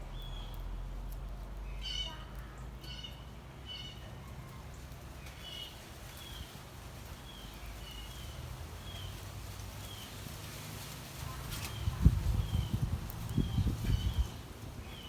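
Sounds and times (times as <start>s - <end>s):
small songbirds chirping: 0.0s - 10.4s, 11.2s - 15.0s.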